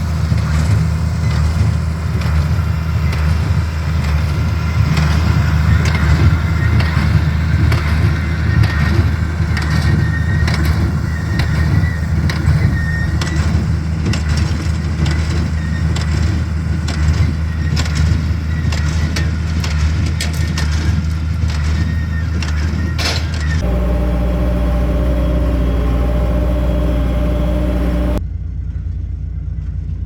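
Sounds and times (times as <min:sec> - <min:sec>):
tractor engine running: 0:23.6 - 0:28.2.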